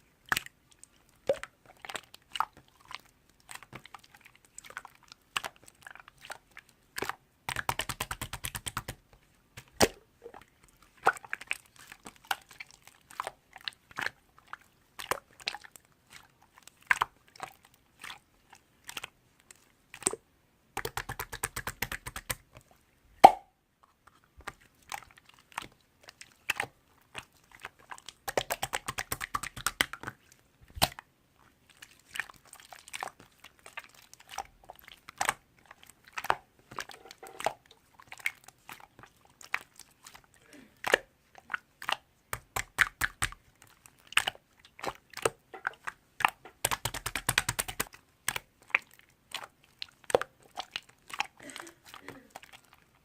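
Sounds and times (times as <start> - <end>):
sharp clicks and taps: 20.8 - 22.4, 45.2 - 47.9.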